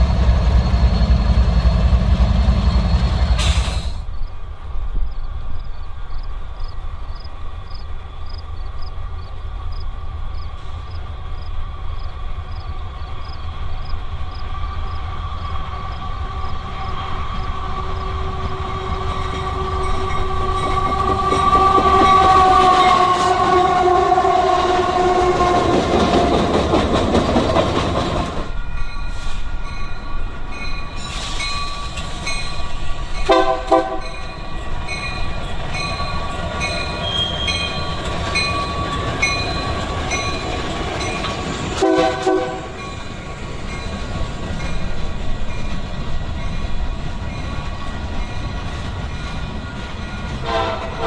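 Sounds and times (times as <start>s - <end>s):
train rumbling past: 0.0s - 51.0s
locomotive horn: 17.7s - 26.5s, 33.3s - 34.2s, 41.8s - 42.8s, 50.4s - 51.0s.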